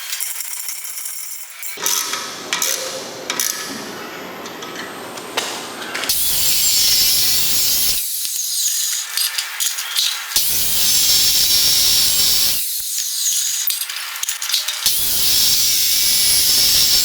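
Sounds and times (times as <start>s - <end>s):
metal parts clicking and scraping: 0.0s - 3.7s, 6.0s - 11.0s, 11.9s - 15.0s
power tool running: 1.8s - 8.1s.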